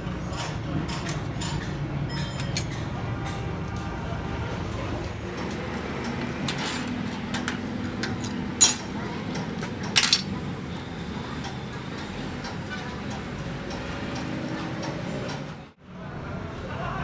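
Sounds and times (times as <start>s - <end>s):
metal clinking against metal: 6.5s - 9.0s, 9.9s - 10.3s.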